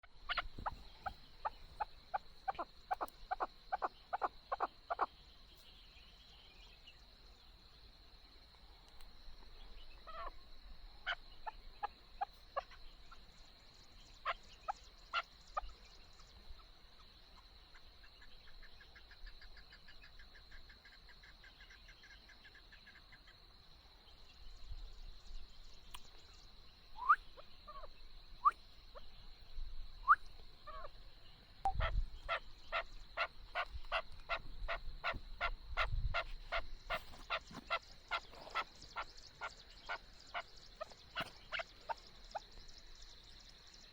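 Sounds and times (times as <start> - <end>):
partridge clucking calls: 0.0 - 5.2, 9.8 - 10.4, 11.0 - 13.3, 14.0 - 23.3, 27.0 - 29.2, 30.0 - 31.0, 31.6 - 42.7.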